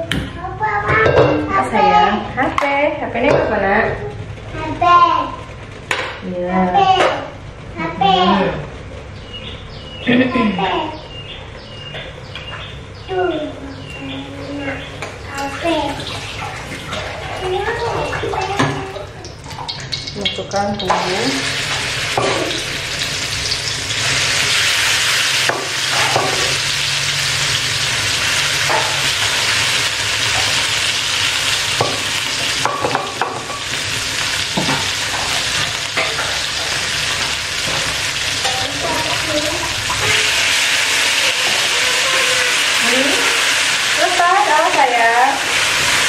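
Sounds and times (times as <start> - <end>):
paste sizzling in hot oil: 21.0 - 46.0.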